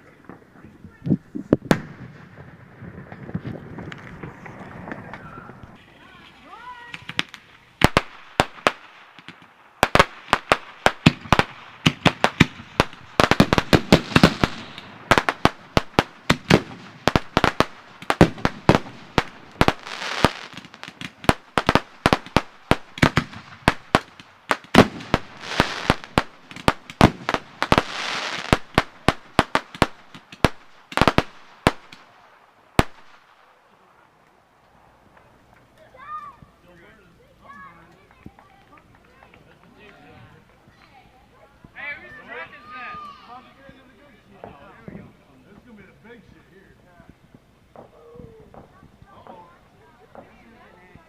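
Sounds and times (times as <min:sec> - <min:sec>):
fireworks bangs and cracks: 0:00.2 - 0:33.5, 0:47.1 - 0:51.0.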